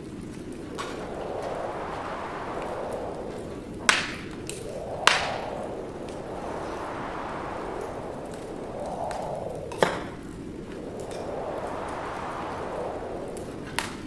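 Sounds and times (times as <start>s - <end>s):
rush of wind: 0.0s - 14.0s
wood fire crackling: 0.0s - 14.0s
sharp crackling pops: 3.7s - 6.5s, 13.3s - 14.0s.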